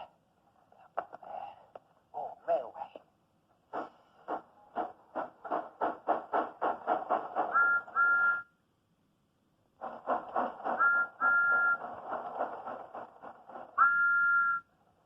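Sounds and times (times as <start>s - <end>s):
steam locomotive chuffing: 3.7s - 8.3s, 9.8s - 14.3s
two-note train whistle: 7.5s - 8.5s, 10.8s - 11.8s, 13.8s - 14.7s.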